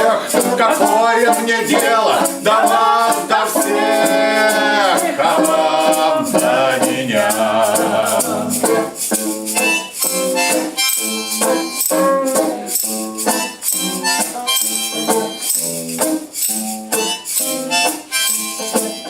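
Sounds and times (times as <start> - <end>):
acoustic guitar chords strummed: 1.7 - 9.1.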